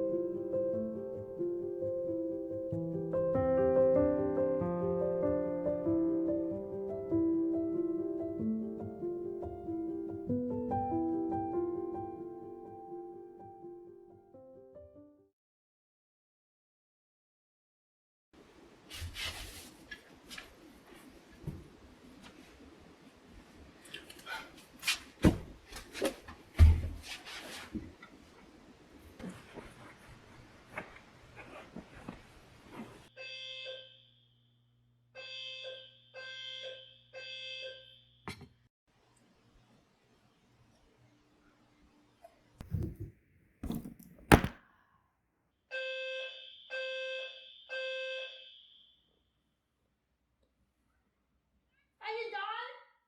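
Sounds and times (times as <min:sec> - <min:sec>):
heavy thump: 0:42.6 - 0:44.6
knocks and handling noises: 0:42.6 - 0:44.6
appliance beeper long beeps: 0:45.7 - 0:49.0.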